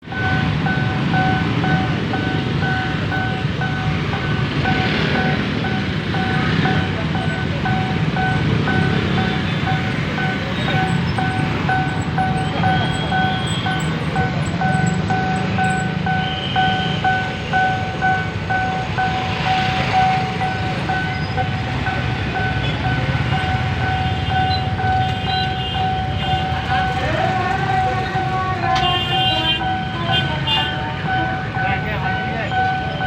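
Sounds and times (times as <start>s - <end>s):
level crossing warning bell: 0.0s - 33.0s
road traffic rumble: 0.0s - 33.0s.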